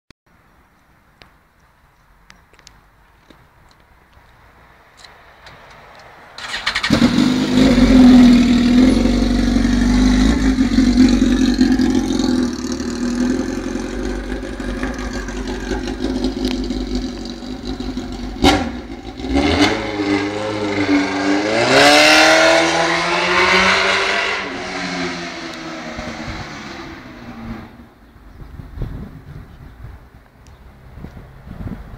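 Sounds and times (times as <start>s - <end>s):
motorcycle engine revving: 6.4s - 27.8s.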